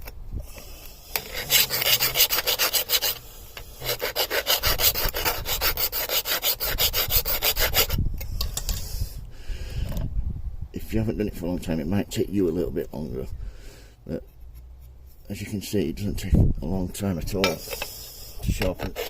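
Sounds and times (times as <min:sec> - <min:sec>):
hand file rasping on steel blade: 0:01.1 - 0:03.2, 0:03.8 - 0:08.0, 0:18.8 - 0:19.0.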